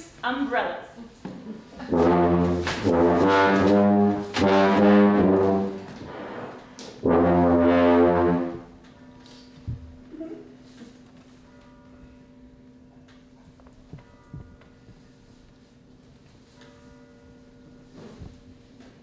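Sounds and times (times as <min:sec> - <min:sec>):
low brass instrument held notes: 0:01.8 - 0:09.0.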